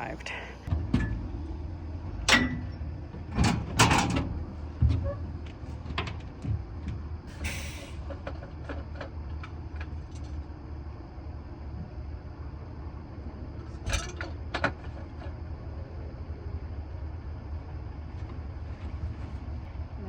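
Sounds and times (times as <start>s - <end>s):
low engine hum: 0.0s - 20.0s
sharp knocks and clunks: 0.7s - 1.6s.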